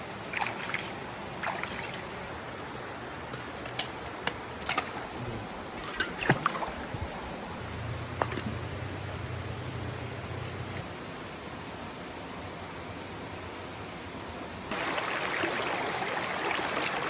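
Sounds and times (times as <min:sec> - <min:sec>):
water drips and plops: 0:00.3 - 0:02.1, 0:05.8 - 0:07.2, 0:08.2 - 0:08.6
water running: 0:00.3 - 0:10.8.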